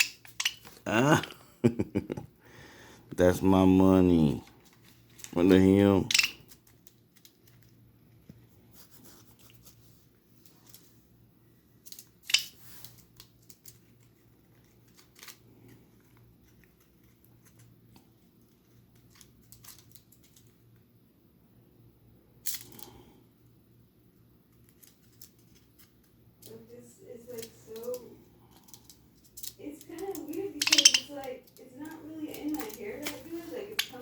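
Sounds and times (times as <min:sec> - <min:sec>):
bird pecking clicks: 0:06.1 - 0:06.6, 0:28.7 - 0:34.0
paper crinkling: 0:31.4 - 0:34.0.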